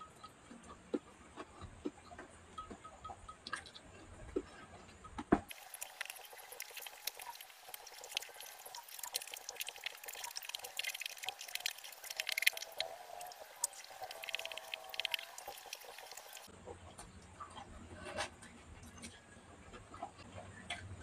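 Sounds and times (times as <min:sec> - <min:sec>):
chewing and lip smacking: 0:05.5 - 0:16.5.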